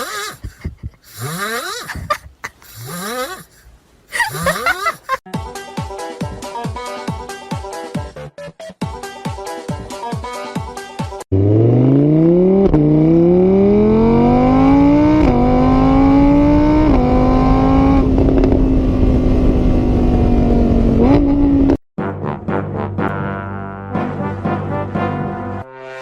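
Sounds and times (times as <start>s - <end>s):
vehicle engine accelerating: 11.3s - 21.8s.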